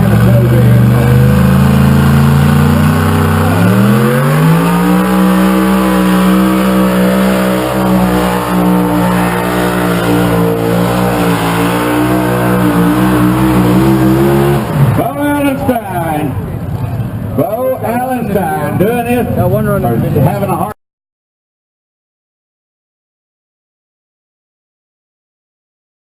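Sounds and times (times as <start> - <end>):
tractor engine at high revs: 0.0 - 15.8.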